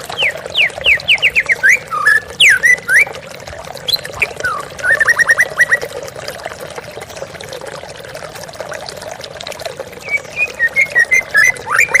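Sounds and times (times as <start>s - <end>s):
songbird chirping: 0.0s - 3.0s, 10.0s - 12.0s.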